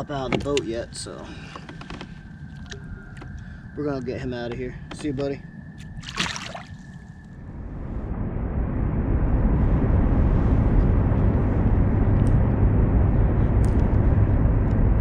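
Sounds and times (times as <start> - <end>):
low rumble: 0.0 - 15.0
fish splashing into water: 5.8 - 7.0.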